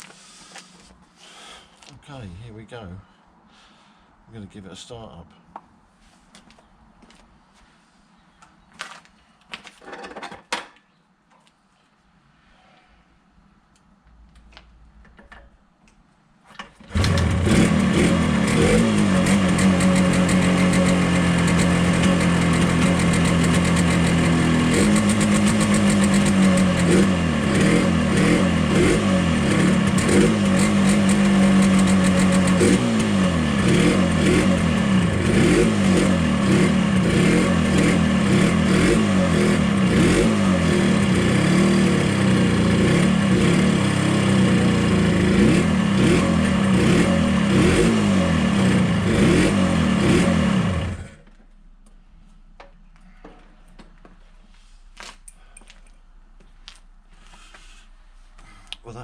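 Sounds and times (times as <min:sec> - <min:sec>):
two-stroke motorcycle engine running: 0:16.9 - 0:51.2.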